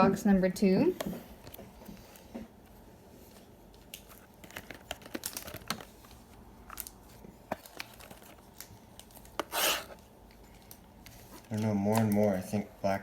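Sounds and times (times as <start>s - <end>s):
wrapping crinkling: 3.1s - 12.6s
wrapping ripping: 3.8s - 10.0s.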